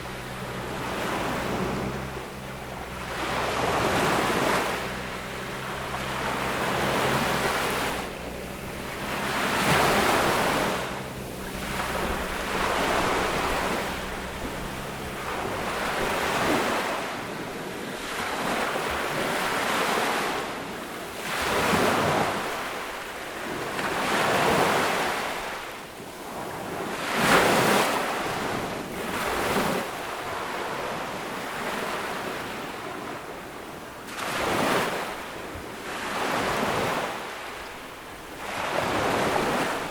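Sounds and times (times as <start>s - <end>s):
low steady hum: 0.0s - 17.7s
ocean waves breaking: 0.0s - 39.9s.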